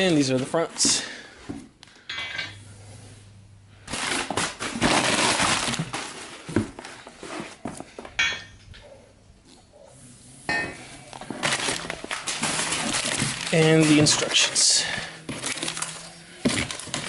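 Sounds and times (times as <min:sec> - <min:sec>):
rustling and scraping in a box: 0:02.7 - 0:08.1, 0:09.5 - 0:17.0.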